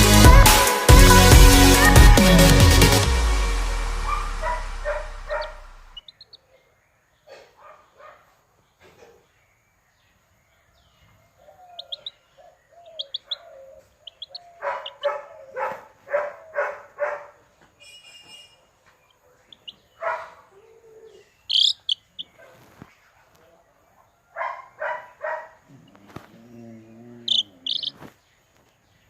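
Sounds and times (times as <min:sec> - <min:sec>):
thin high chirps: 0:21.5 - 0:22.3, 0:27.3 - 0:28.0
chicken clucking: 0:25.7 - 0:28.1.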